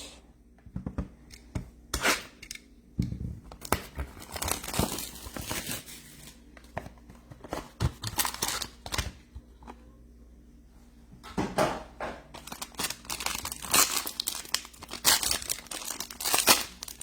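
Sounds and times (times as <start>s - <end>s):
wrapper crinkling and tearing: 3.6s - 6.4s, 8.0s - 9.2s, 12.4s - 17.0s.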